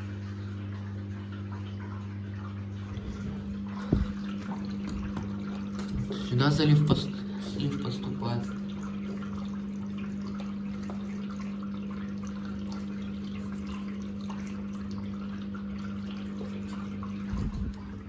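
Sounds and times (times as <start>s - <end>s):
drain pump humming: 0.0s - 18.0s
water pouring down drain: 0.0s - 18.0s.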